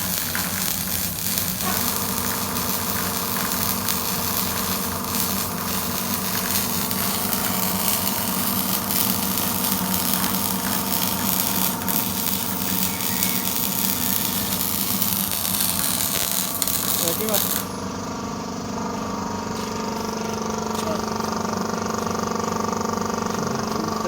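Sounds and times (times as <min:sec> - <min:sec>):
loud hiss: 0:00.0 - 0:17.8
welding machine humming: 0:00.0 - 0:24.0.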